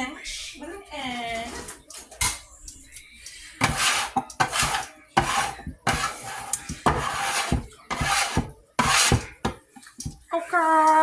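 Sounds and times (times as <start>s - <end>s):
metal scraper scraping a surface: 3.6s - 9.6s.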